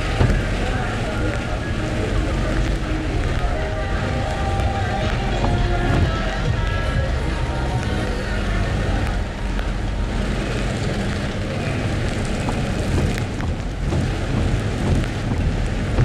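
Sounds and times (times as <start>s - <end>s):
engine and tyres on wet road: 0.0s - 16.0s
rain patter on car: 0.0s - 16.0s.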